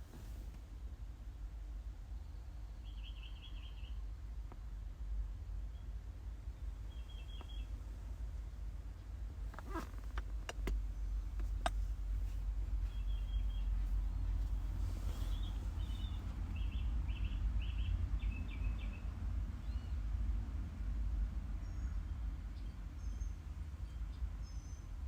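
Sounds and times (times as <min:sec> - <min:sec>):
steady low rumble: 0:00.0 - 0:25.0
bird chirping: 0:02.2 - 0:04.0, 0:06.9 - 0:07.8, 0:09.6 - 0:20.0.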